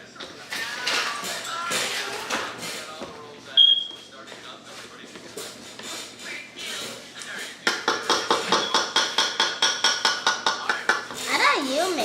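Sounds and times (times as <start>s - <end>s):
utensil striking mixing bowl: 7.6s - 11.5s.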